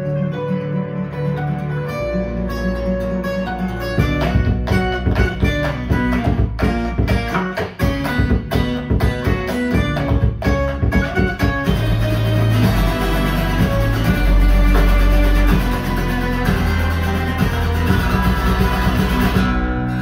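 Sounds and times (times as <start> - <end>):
guitar music over speakers: 0.0 - 20.0.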